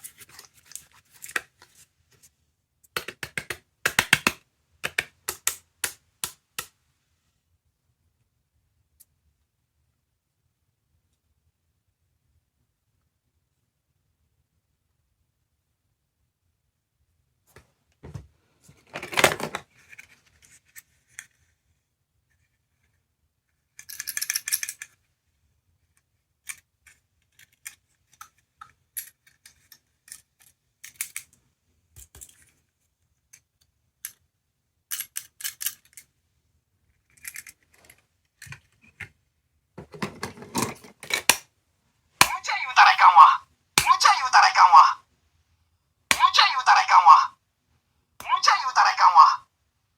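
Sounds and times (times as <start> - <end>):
plastic capsule toys clicking: 2.9 - 6.7.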